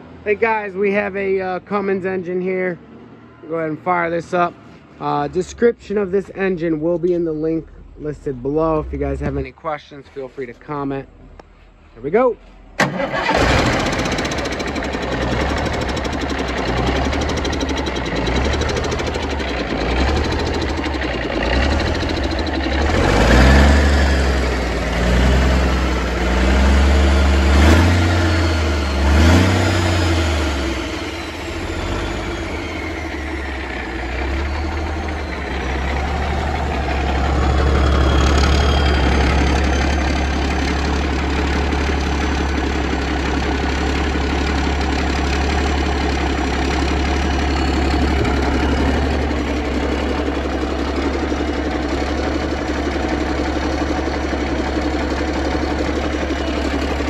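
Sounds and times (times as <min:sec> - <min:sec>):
diesel engine revving: 0:00.0 - 0:09.6, 0:12.8 - 0:57.0
diesel engine idling: 0:12.6 - 0:57.0.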